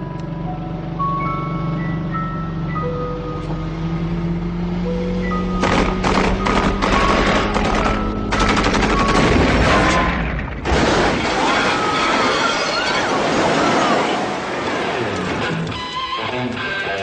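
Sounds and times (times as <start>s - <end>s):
machine-gun fire: 5.6s - 11.3s
loud burst with wailing tones: 5.6s - 15.0s
rock music: 15.0s - 17.0s.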